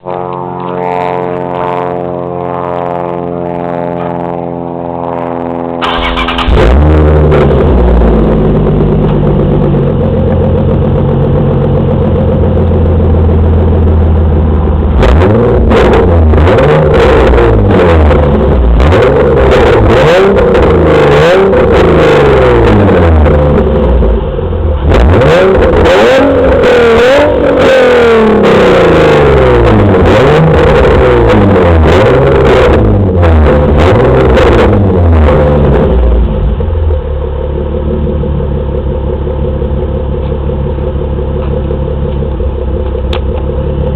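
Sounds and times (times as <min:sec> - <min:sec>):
car engine idling and revving: 0:00.0 - 0:43.9.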